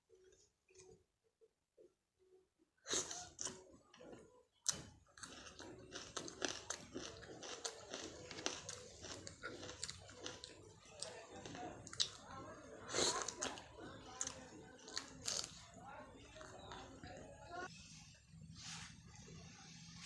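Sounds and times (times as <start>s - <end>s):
chewing and crunching food: 2.9s - 17.7s.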